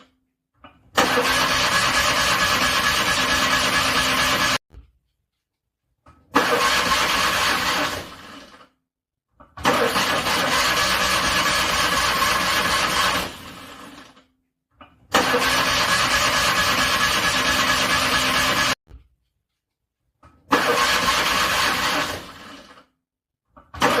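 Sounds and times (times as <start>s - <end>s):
car engine cranking: 1.0s - 4.6s, 6.3s - 8.6s, 9.6s - 13.7s, 15.1s - 18.8s, 20.5s - 22.7s.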